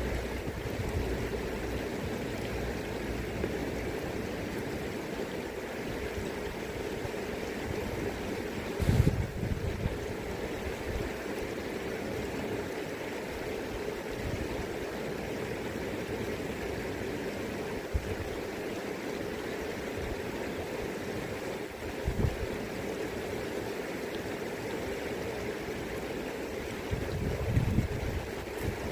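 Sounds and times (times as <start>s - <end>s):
river water rushing: 0.0s - 28.9s
wind buffeting microphone: 8.8s - 10.2s, 22.0s - 22.5s, 26.9s - 28.9s.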